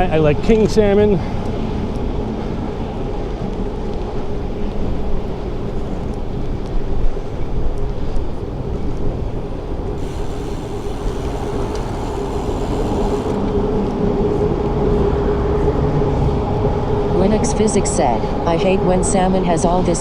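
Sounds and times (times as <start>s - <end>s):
faint steady hum: 8.9s - 14.7s
thin hiss: 9.9s - 13.5s.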